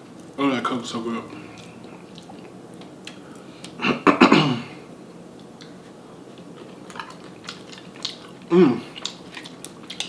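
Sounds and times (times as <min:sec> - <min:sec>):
person clearing throat: 0:03.8 - 0:04.8, 0:08.5 - 0:09.0.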